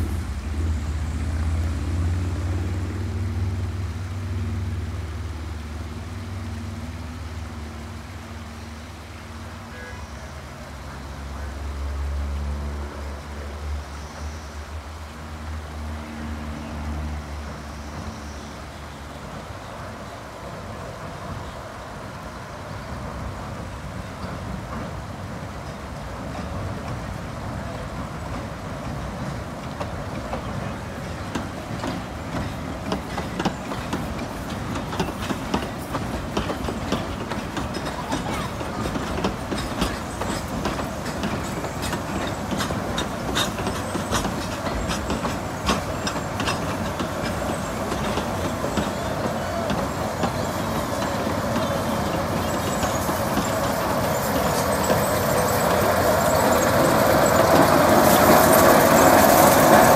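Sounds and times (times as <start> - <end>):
diesel locomotive engine: 0.0 - 59.9
wheels clicking over rail joints: 24.0 - 59.9.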